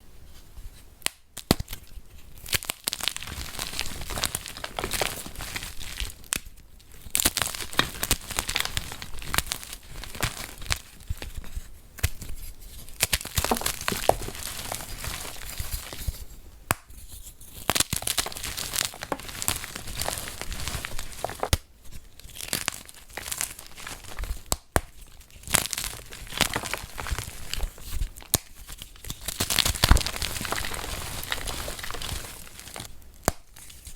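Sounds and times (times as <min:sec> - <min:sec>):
chalk being crushed: 0:12.0 - 0:21.6, 0:22.3 - 0:33.9.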